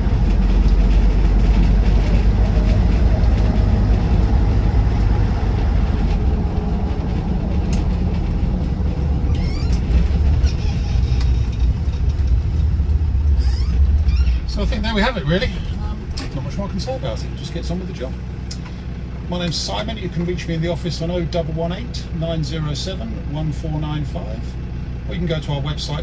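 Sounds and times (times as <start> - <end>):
tyre and road noise: 0.0 - 20.0
diesel engine rumble: 0.0 - 26.0.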